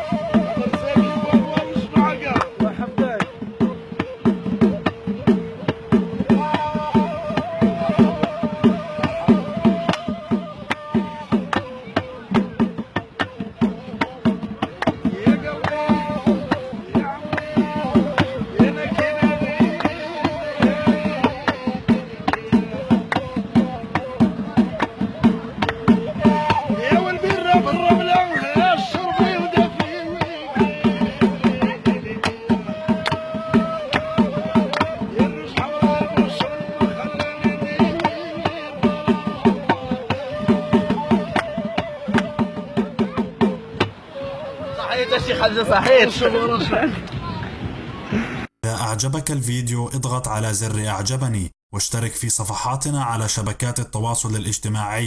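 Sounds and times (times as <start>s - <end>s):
reed flute with trills: 0.0s - 11.5s, 38.2s - 46.0s
reed flute melody: 0.0s - 12.8s, 15.0s - 46.5s
hand drum beat: 0.0s - 47.4s.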